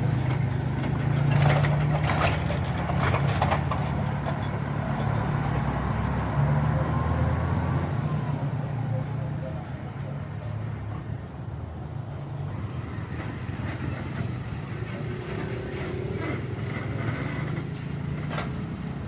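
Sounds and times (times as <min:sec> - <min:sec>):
rattles and clicks: 0:00.0 - 0:05.2, 0:12.6 - 0:19.0
heavy truck engine running: 0:00.0 - 0:19.0.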